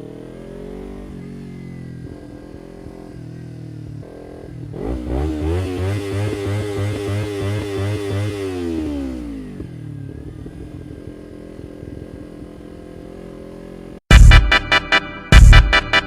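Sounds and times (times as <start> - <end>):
motorcycle engine running: 0.0 - 16.0
loud electronic music: 14.1 - 16.0.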